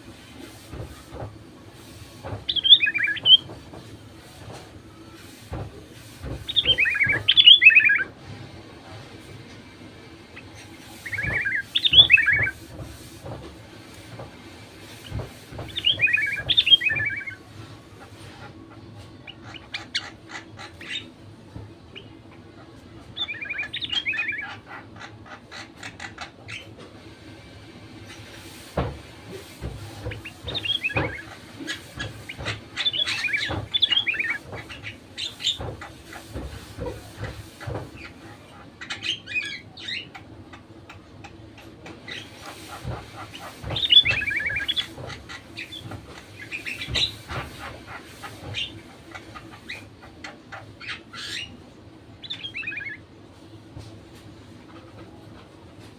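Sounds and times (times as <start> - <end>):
bulbul singing: 6.5 - 8.1.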